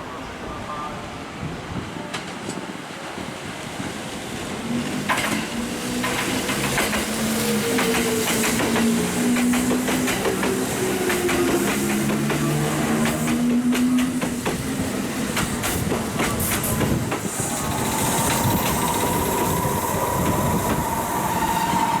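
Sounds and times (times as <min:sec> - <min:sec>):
train wheels clicking over rail joints: 0:04.9 - 0:22.0
train motors whining: 0:17.2 - 0:22.0.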